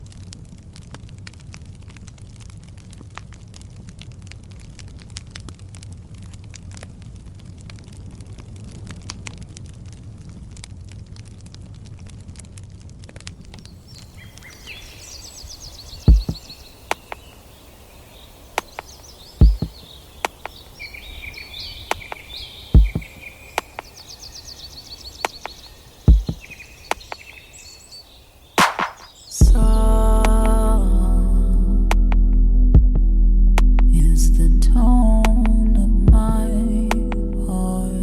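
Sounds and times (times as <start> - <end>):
light crackling: 0.0 - 32.4
birds singing: 13.6 - 30.5
heavy low thumps: 19.4 - 19.7, 22.8 - 23.1, 29.4 - 38.0.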